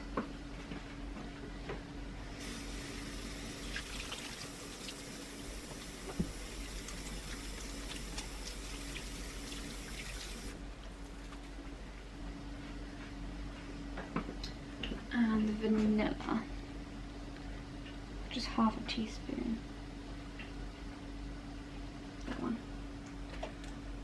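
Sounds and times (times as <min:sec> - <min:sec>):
tap running into a sink: 0:03.6 - 0:10.5.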